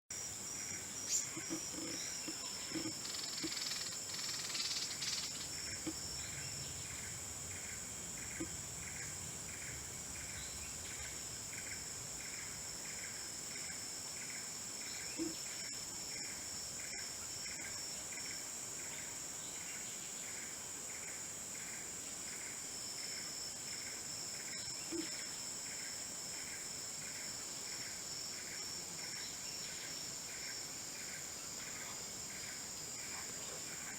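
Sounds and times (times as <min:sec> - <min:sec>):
insects droning high-pitched: 0:00.1 - 0:33.9
regular insect chirp: 0:00.1 - 0:33.9.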